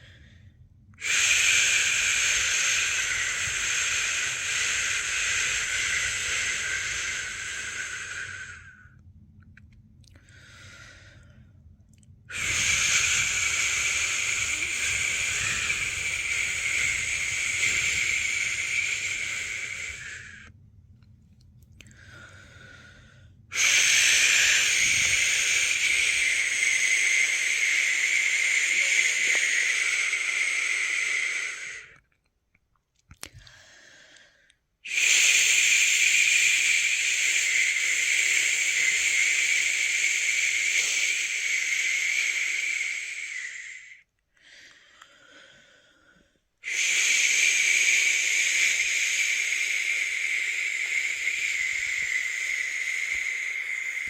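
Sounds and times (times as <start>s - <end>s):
person shushing: 12.3s - 20.5s, 23.5s - 32.0s, 34.9s - 44.0s, 46.6s - 54.0s.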